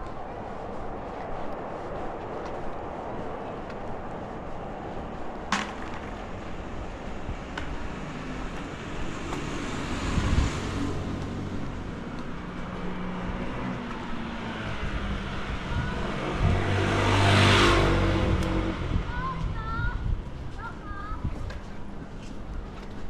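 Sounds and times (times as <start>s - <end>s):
street traffic hum: 0.0s - 23.0s
vehicle passing close by: 6.2s - 19.2s.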